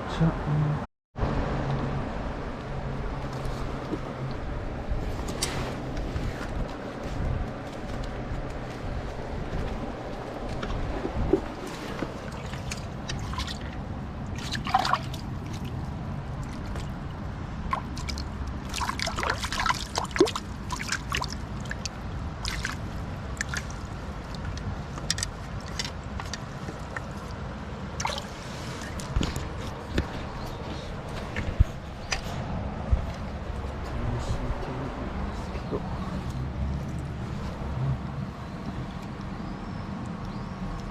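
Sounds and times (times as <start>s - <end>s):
stream trickling over rocks: 10.6s - 31.2s
small splashes: 11.3s - 29.8s.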